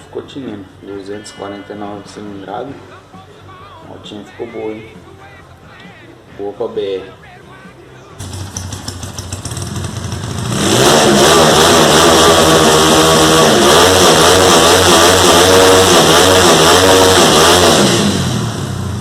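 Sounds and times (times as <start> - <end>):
motorcycle engine revving: 8.2 - 19.0.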